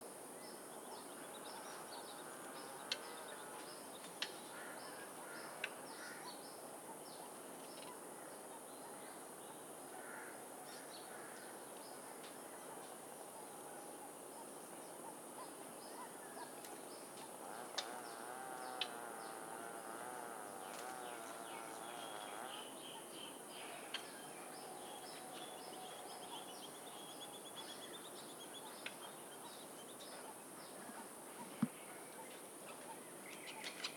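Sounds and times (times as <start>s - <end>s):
small birds chirping: 20.4s - 33.9s.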